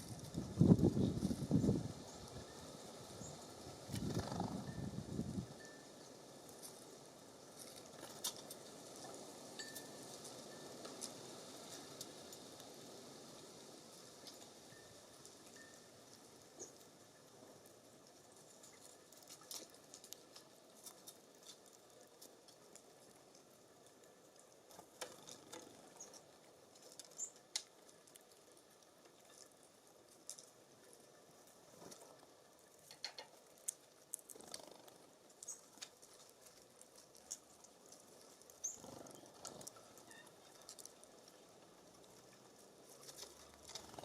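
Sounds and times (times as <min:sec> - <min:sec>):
animals tapping at seed feeder: 0:31.7 - 0:44.0
faint high bird chirps: 0:38.6 - 0:39.4.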